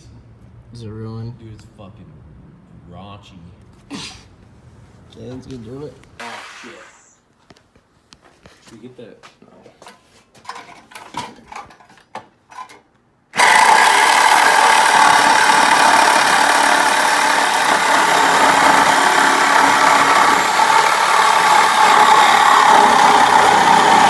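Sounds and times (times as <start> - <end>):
power tool whining: 13.4 - 24.0.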